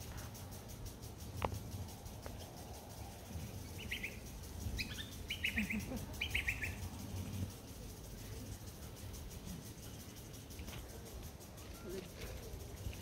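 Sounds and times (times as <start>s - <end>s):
low steady rumble: 0.0s - 11.6s
bird chirping: 2.3s - 10.8s.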